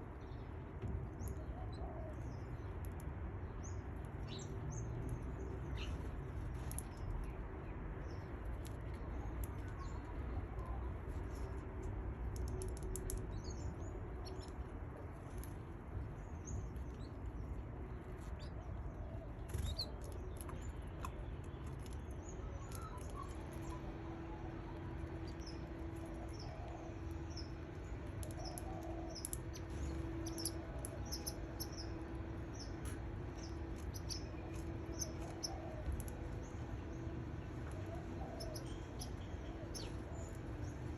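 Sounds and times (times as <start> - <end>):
steady low hum: 0.0 - 40.9
chicks peeping: 28.2 - 31.9, 32.5 - 36.1.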